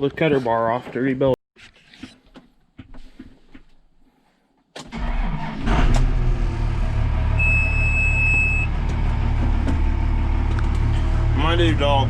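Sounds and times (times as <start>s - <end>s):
engine cranking and idling: 4.8s - 12.0s
high warning beep: 7.4s - 8.7s.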